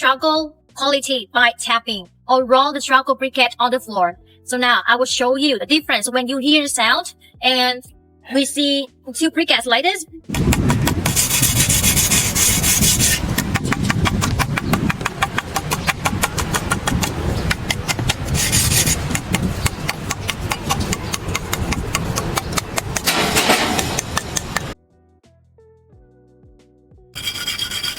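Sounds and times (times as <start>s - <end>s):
bright scraping: 11.0s - 14.0s, 15.0s - 21.0s, 27.2s - 27.9s.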